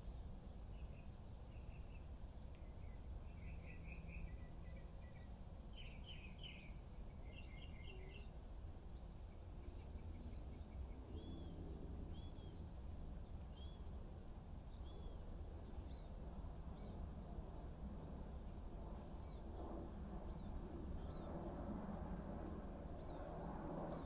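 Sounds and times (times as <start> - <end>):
small bird chirping: 0.0 - 17.0
steady low rumble: 0.0 - 24.0.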